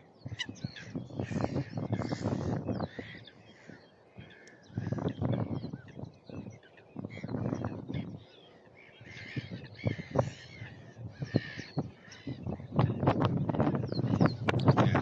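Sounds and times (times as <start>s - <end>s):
gulls cawing: 0.3s - 5.5s, 8.9s - 12.6s, 14.7s - 15.0s.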